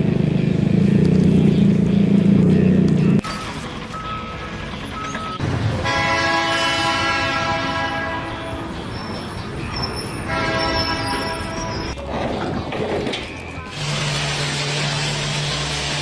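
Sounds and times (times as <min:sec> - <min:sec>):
air horn blasts: 0:05.4 - 0:12.0.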